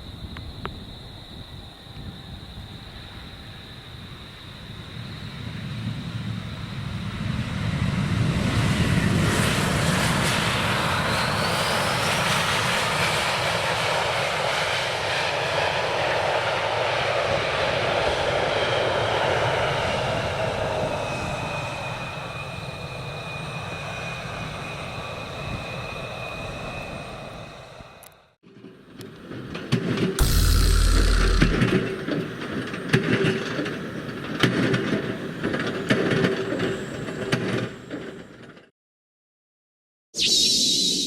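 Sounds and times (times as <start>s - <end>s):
jet engine high whine: 1.6s - 28.0s, 30.2s - 32.4s.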